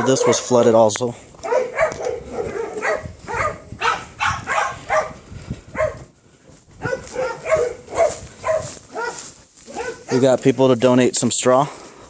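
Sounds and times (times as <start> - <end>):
dogs barking: 0.0 - 0.8, 1.4 - 6.1, 6.8 - 10.5.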